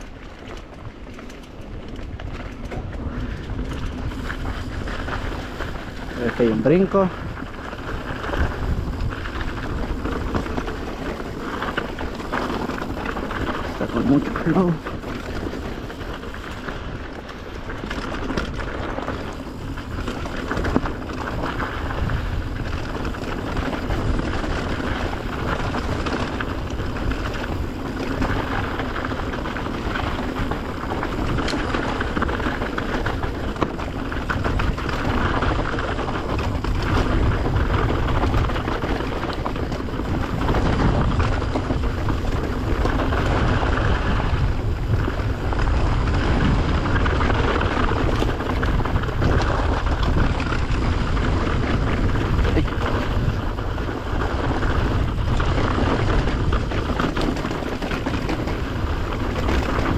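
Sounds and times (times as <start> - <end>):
bike rattling and knocking: 0.0 - 59.9
bike tyres on dirt: 0.0 - 59.9
wind rushing on microphone: 0.0 - 59.9.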